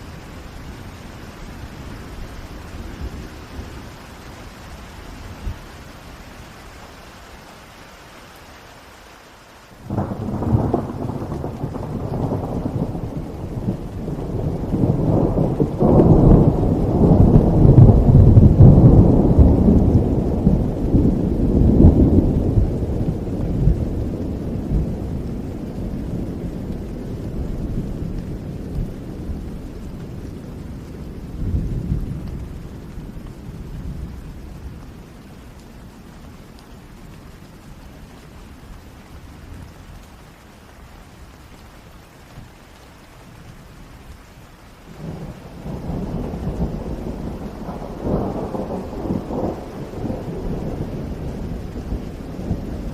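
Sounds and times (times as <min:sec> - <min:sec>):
steady rain: 0:00.0 - 0:52.9
rolling thunder: 0:09.8 - 0:35.2, 0:44.9 - 0:52.9.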